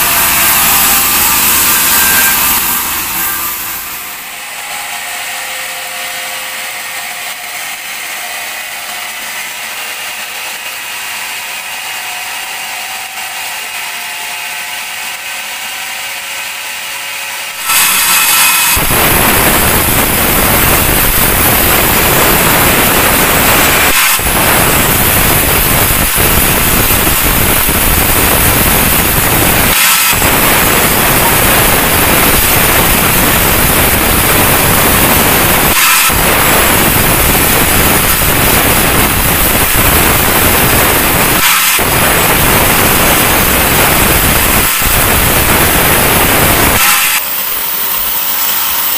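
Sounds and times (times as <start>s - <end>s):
band sawmill humming: 0.0s - 13.9s
saw blade cutting log: 0.0s - 48.9s.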